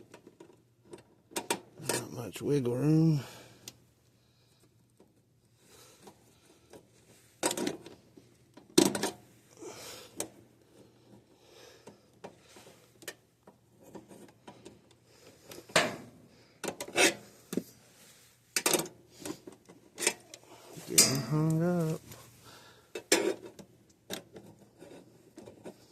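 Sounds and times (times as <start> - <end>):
hand tools knocking and scraping metal: 20.8 - 22.0.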